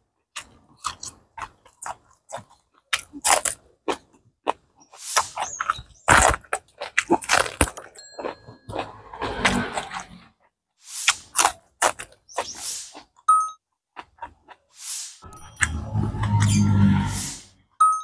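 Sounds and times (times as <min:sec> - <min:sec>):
crunching and chewing vegetables: 0:00.0 - 0:16.5
short electronic tones: 0:15.2 - 0:18.0.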